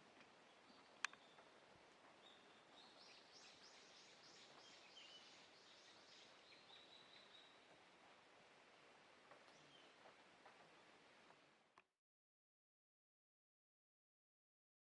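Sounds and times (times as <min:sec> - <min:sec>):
faint bird song: 0:00.0 - 0:11.2
quiet outdoor hiss: 0:00.0 - 0:11.9.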